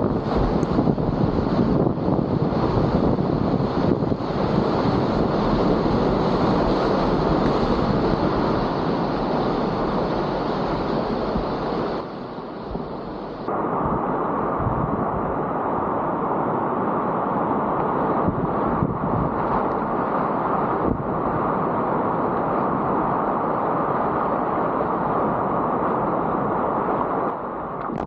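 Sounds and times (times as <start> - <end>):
rushing river whitewater: 0.0 - 28.0
wind buffeting microphone: 0.0 - 28.0.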